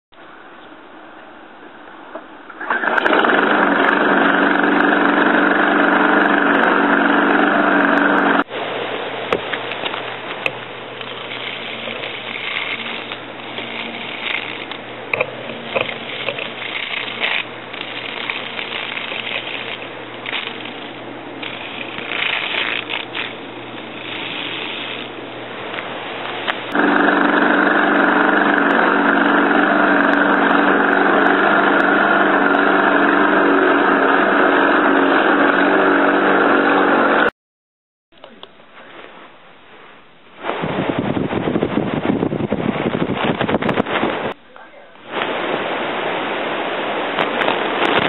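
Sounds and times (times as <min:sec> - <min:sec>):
small electric motor running: 0:03.0 - 0:08.4, 0:10.9 - 0:25.2, 0:26.7 - 0:37.3.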